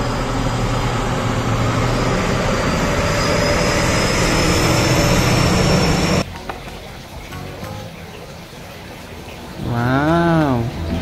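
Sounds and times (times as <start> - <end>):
diesel truck driving past: 0.0 - 6.2
faint high whine: 0.0 - 6.2.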